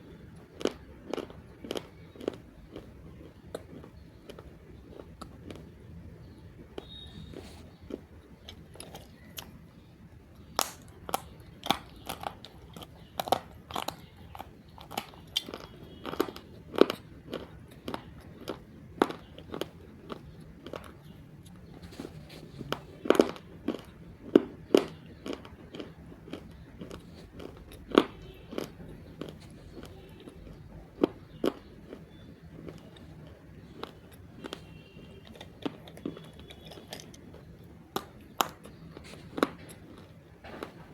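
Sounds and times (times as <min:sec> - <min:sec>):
clay crunching as chewed: 0:00.0 - 0:05.8, 0:06.7 - 0:09.6, 0:10.3 - 0:40.9.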